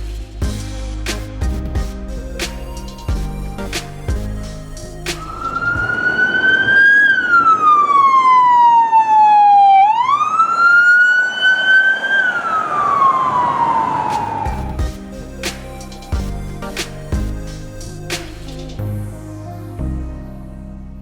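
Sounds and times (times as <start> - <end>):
emergency siren wailing: 4.3 - 15.4.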